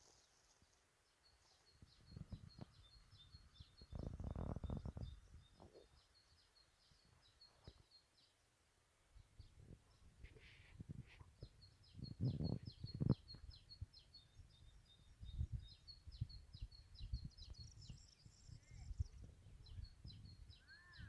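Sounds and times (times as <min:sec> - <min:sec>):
high bird chirps: 0:17.0 - 0:21.0.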